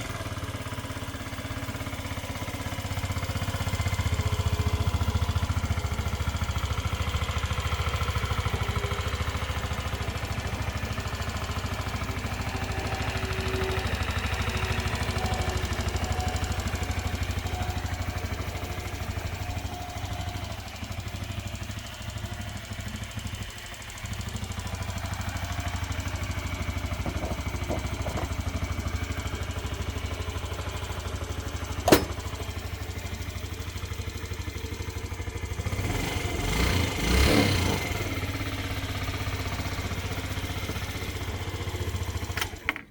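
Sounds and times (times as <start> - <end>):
scooter engine idling: 0.0 - 42.9
sharp click: 31.9 - 32.2.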